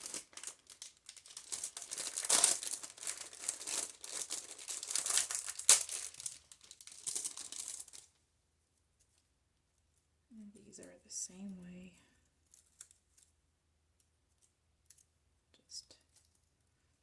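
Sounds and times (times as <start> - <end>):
artificial flowers crinkling: 0.0 - 8.2, 12.2 - 15.2.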